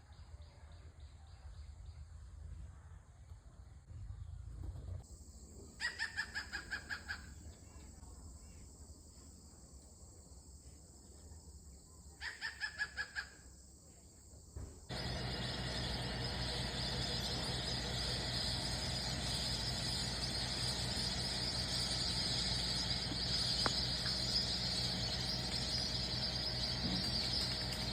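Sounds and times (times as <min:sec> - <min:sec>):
bird rapid call notes: 0:14.9 - 0:27.9
steady high hiss: 0:14.9 - 0:27.9.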